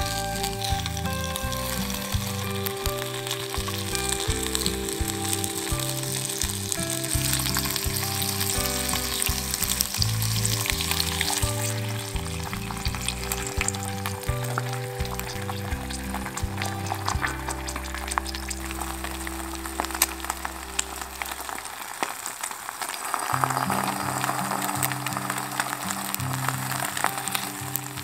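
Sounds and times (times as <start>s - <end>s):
background music with low bass: 0.0s - 22.1s, 23.3s - 28.0s
ham sizzling in a frying pan: 0.0s - 28.0s.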